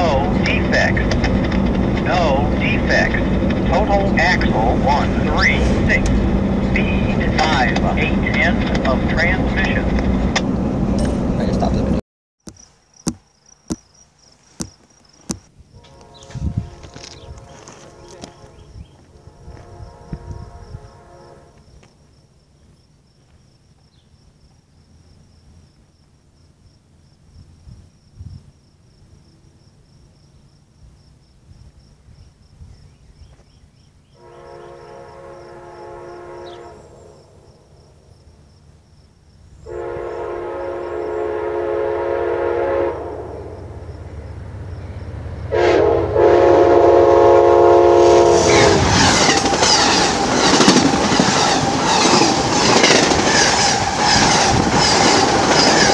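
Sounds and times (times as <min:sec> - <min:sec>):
train passing rumble and clatter: 0:00.0 - 0:12.0, 0:14.6 - 0:23.4, 0:33.7 - 0:55.9
locomotive air horn blasts: 0:15.7 - 0:21.7, 0:34.2 - 0:37.4, 0:39.6 - 0:43.6, 0:45.5 - 0:49.0.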